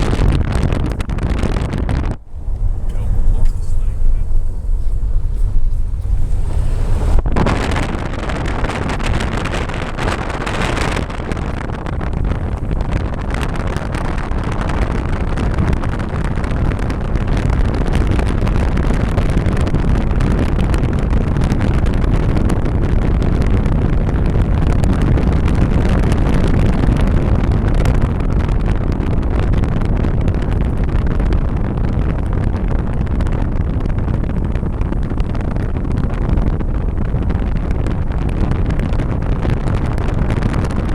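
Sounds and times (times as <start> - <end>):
car driving rumble: 0.0 - 40.9
wind buffeting microphone: 0.0 - 40.9.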